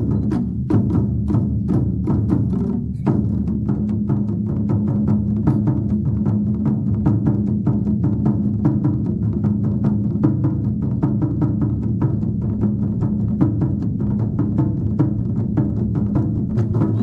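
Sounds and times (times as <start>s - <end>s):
drum ensemble playing: 14.8s - 17.0s.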